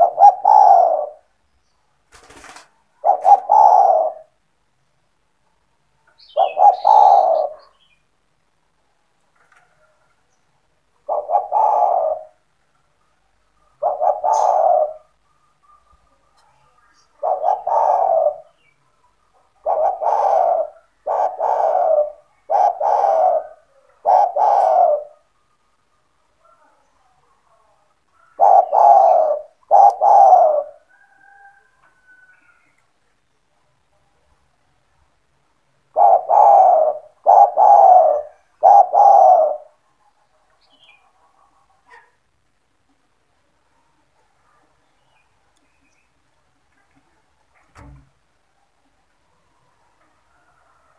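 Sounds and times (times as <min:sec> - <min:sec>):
dove cooing: 0:00.0 - 0:01.4, 0:02.3 - 0:04.4, 0:06.2 - 0:07.9, 0:11.0 - 0:12.5, 0:13.6 - 0:16.4, 0:17.0 - 0:25.3, 0:28.2 - 0:32.6, 0:35.9 - 0:39.8.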